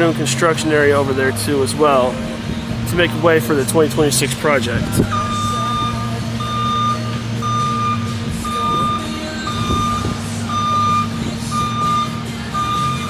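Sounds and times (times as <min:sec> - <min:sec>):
vehicle engine running: 0:00.0 - 0:12.0
vehicle backup alarm beeping: 0:04.1 - 0:13.0.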